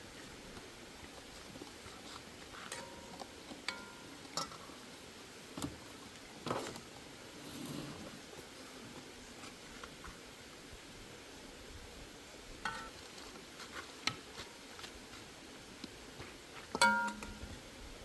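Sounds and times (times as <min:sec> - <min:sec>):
pots and utensils clinking: 0:03.7 - 0:04.6, 0:16.8 - 0:17.4.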